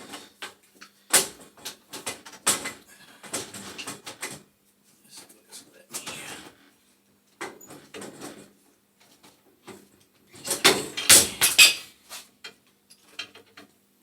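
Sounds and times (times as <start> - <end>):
metal tools clanking and scraping: 10.4 - 11.9.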